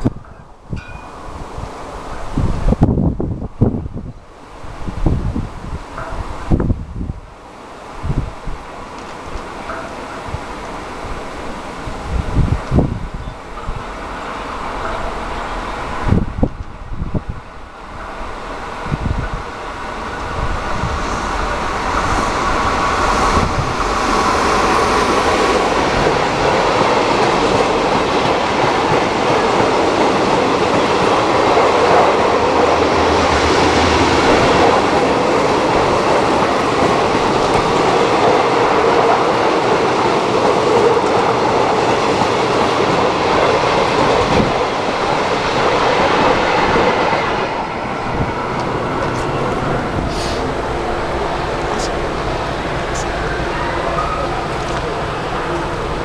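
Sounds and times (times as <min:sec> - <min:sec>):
freight train wheels rolling: 0:00.0 - 0:56.0.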